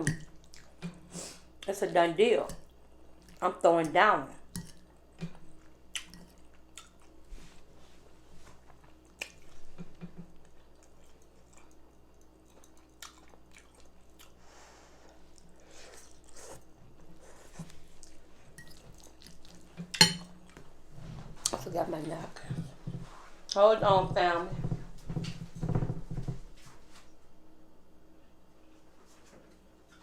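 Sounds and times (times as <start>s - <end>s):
close chewing mouth sounds: 5.6s - 7.2s, 8.9s - 14.4s, 17.3s - 19.8s.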